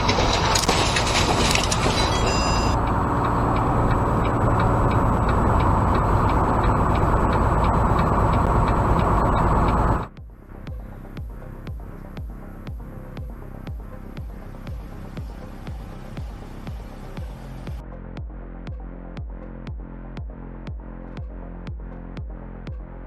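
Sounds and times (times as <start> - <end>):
steady rumbling noise: 0.0 - 17.9
light ticking: 2.8 - 10.1
music with a beat: 10.1 - 23.0.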